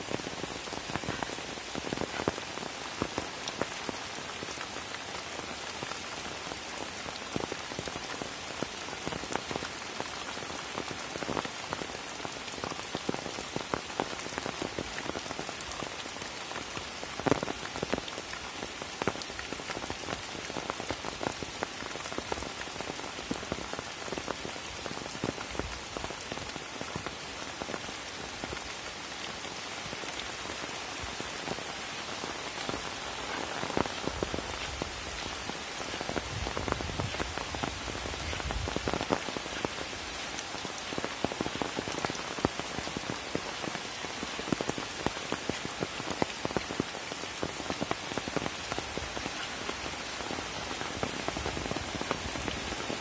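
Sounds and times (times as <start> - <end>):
rain falling on a pond: 0.0 - 53.0.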